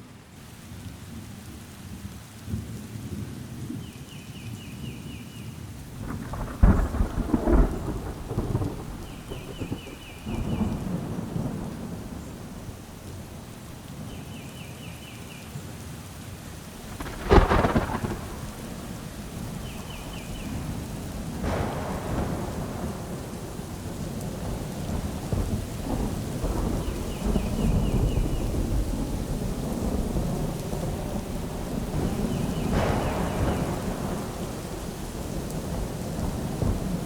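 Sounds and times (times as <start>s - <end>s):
steady rain: 0.0s - 37.0s
rolling thunder rumbles: 5.8s - 14.3s, 16.8s - 37.0s
sharp thunderclaps: 6.0s - 13.5s, 16.9s - 37.0s.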